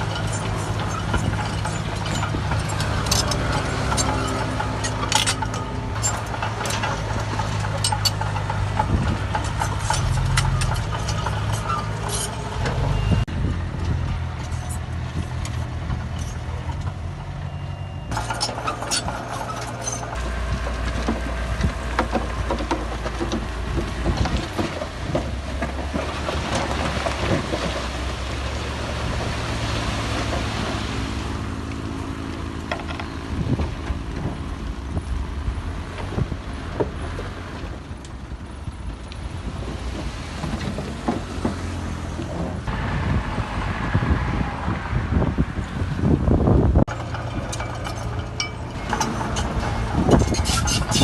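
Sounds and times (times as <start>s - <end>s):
metallic clanks and rattles: 0.0s - 17.4s, 18.0s - 34.6s, 46.8s - 51.0s
diesel construction machinery running: 0.0s - 51.0s.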